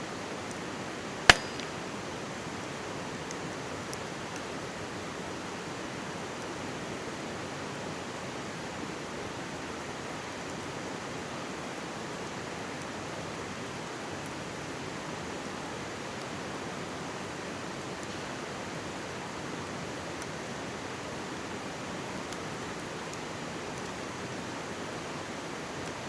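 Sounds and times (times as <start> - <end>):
campfire pops: 1.3 - 2.0.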